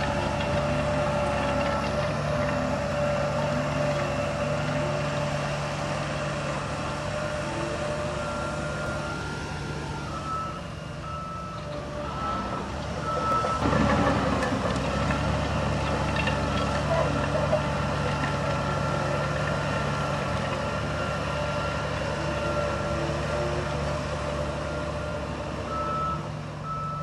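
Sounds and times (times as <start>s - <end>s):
diesel engine running: 0.0s - 27.0s
reversing alarm beeping: 10.0s - 13.7s, 24.6s - 27.0s.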